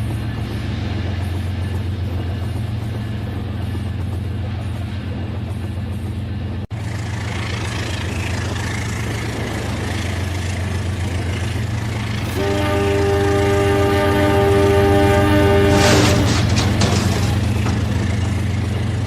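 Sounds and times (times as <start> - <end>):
electronic train horn chord: 12.2 - 16.5.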